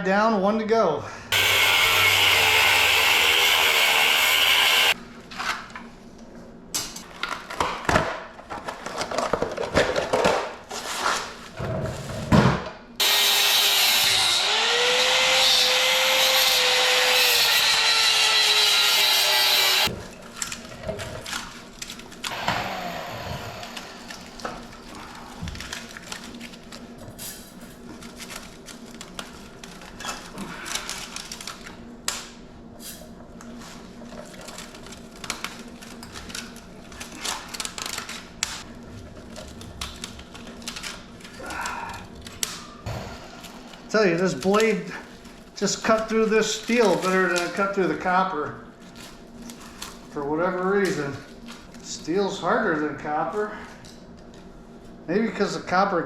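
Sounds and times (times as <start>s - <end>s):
power saw cutting metal: 1.3s - 5.0s, 13.0s - 19.9s, 22.3s - 24.7s.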